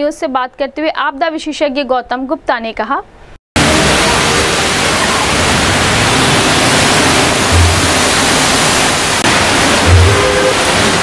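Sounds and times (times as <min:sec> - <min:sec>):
heavy rain pouring: 0:03.6 - 0:11.0.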